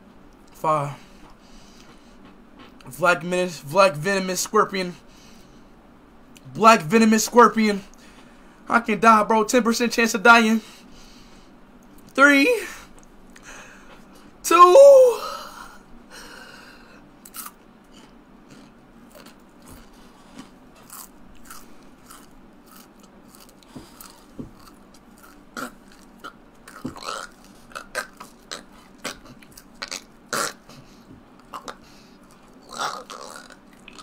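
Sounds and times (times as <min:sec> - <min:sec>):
person chewing and crunching: 0:01.2 - 0:03.0, 0:17.2 - 0:34.0.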